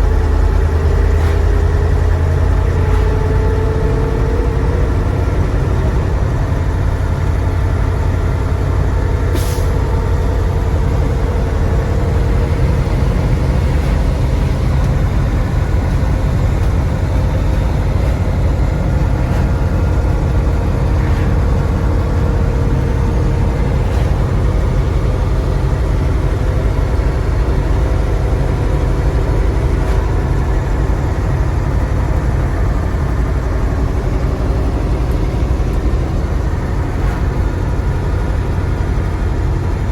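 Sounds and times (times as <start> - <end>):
diesel truck engine running: 0.0 - 39.9
compressed air hiss: 9.3 - 9.8.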